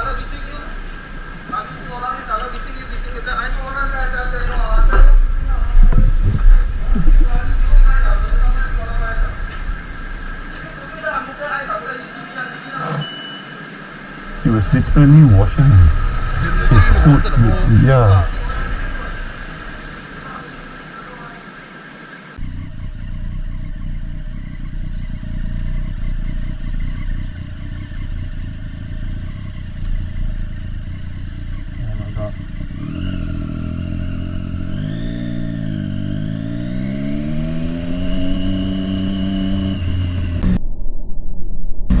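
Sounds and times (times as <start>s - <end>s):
motorcycle engine running: 0.0s - 11.7s, 22.4s - 40.6s.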